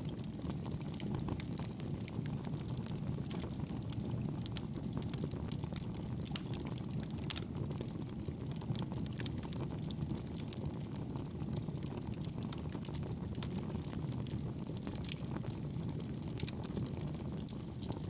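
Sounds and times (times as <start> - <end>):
fire crackling and popping: 0.0 - 18.0
fire rumbling: 0.0 - 18.0.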